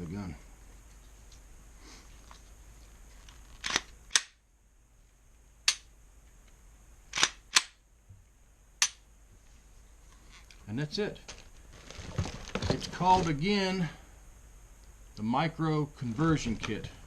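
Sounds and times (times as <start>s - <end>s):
pistol metallic clicks: 3.6s - 4.4s, 5.6s - 5.9s, 7.1s - 7.8s, 8.8s - 9.0s.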